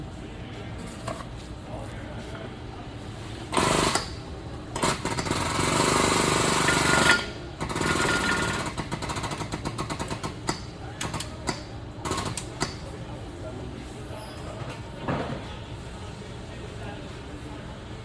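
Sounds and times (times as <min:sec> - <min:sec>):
air tool hammering on metal: 0:03.5 - 0:12.9.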